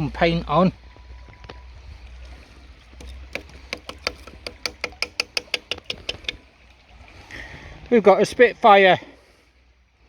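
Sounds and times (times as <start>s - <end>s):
sharp rapid clicks: 3.0s - 6.4s.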